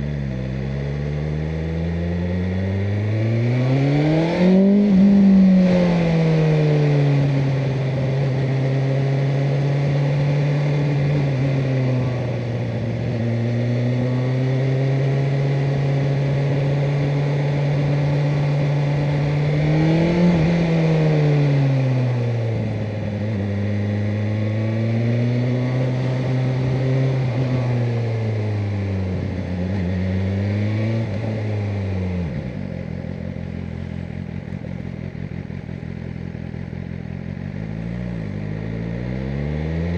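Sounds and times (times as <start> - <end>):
motorcycle engine cruising: 0.0 - 39.9
road and wind noise: 0.0 - 39.9.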